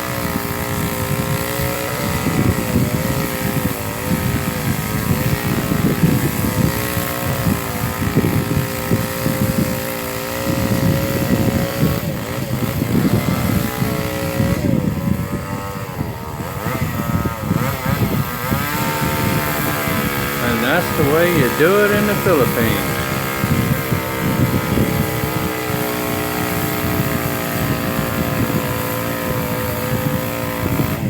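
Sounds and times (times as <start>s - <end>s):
small engine running: 0.0s - 31.0s.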